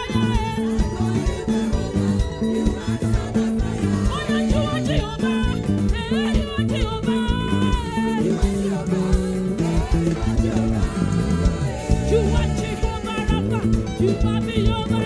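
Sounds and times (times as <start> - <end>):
bass guitar: 0.0 - 15.0
drum kit: 0.0 - 15.0
guitar: 0.0 - 15.0
voices singing: 0.0 - 15.0.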